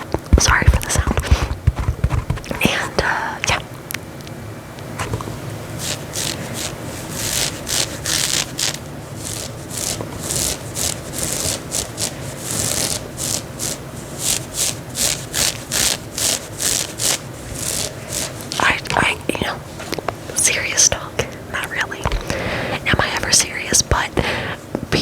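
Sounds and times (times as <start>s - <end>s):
fingernails scratching fabric: 0.4s - 3.3s, 5.0s - 21.0s.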